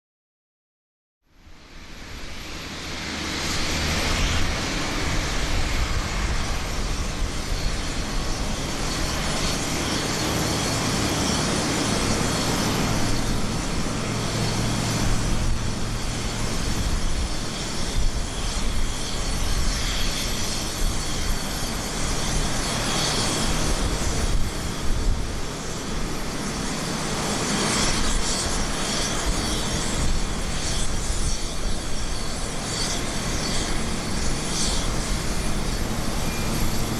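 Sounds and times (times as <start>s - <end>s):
jet engine rushing and whining: 1.4s - 36.9s.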